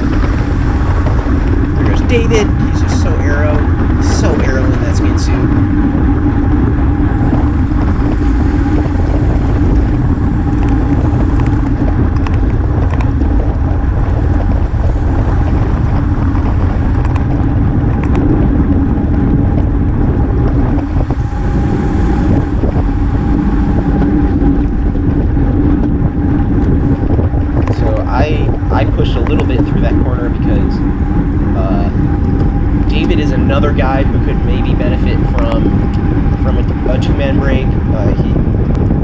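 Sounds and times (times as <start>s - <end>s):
tyres humming on road: 0.0s - 39.0s
wind rushing over microphone: 0.0s - 39.0s.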